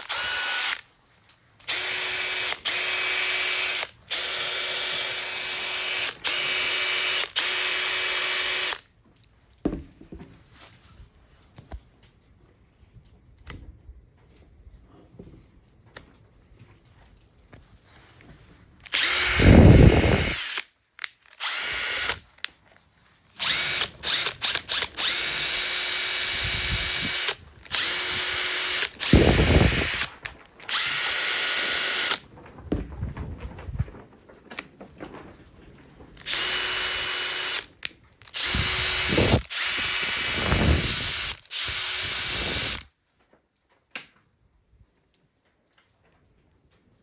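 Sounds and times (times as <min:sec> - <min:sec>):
impact driver motor whine: 0:00.0 - 0:00.8, 0:01.7 - 0:08.8, 0:18.8 - 0:20.6, 0:21.4 - 0:22.2, 0:23.4 - 0:32.2, 0:36.3 - 0:37.7, 0:38.3 - 0:42.8.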